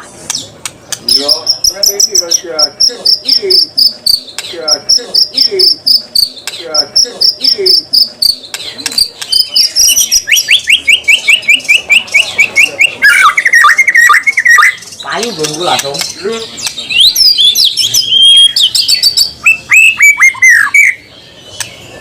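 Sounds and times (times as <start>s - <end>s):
songbird singing whistles and trills: 7.8s - 22.0s.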